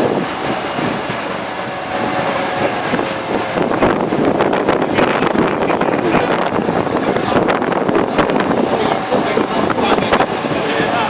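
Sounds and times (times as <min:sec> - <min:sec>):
vehicle engines rumbling: 0:00.0 - 0:11.0
wind buffeting microphone: 0:00.0 - 0:11.0.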